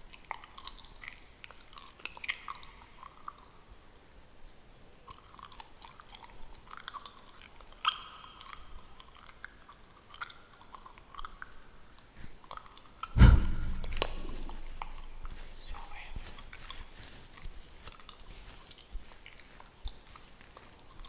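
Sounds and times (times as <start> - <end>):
loud deep thump: 13.2 - 14.6.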